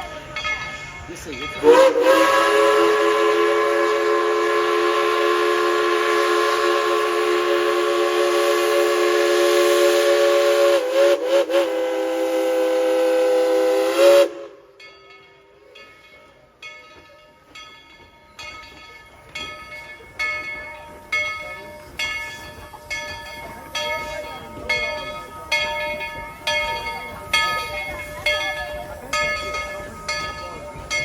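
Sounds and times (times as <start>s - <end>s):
faint train sounds: 0.0s - 31.0s
steam whistle blast: 1.6s - 14.7s.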